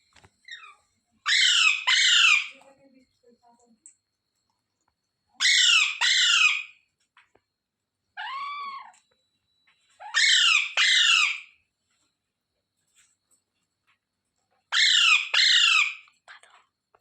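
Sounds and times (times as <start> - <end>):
parakeet squawking: 0.5 - 2.5, 5.4 - 6.7, 10.0 - 11.5, 14.8 - 16.0.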